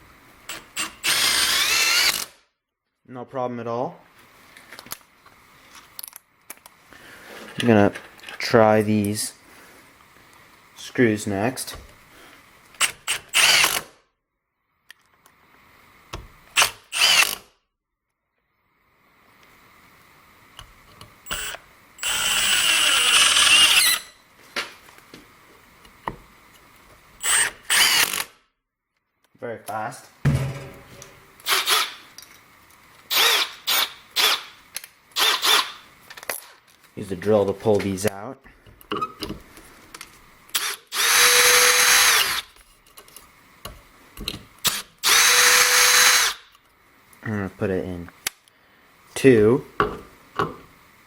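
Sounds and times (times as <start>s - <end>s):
cordless drill whining: 0.5s - 2.4s, 12.8s - 13.9s, 16.6s - 17.4s, 21.2s - 24.2s, 27.2s - 28.3s, 31.4s - 32.0s, 33.1s - 34.5s, 35.2s - 35.8s, 40.5s - 42.5s, 44.6s - 46.4s
impact driver driving a screw: 0.5s - 2.4s, 12.8s - 13.9s, 16.5s - 17.5s, 21.3s - 24.1s, 27.2s - 28.4s, 31.4s - 32.0s, 33.1s - 34.5s, 35.2s - 35.8s, 40.5s - 42.5s, 44.6s - 46.4s.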